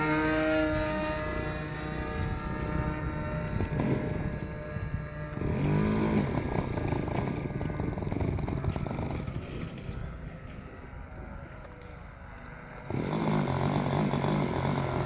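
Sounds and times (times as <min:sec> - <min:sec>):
model airplane engine in flight: 0:00.0 - 0:15.0.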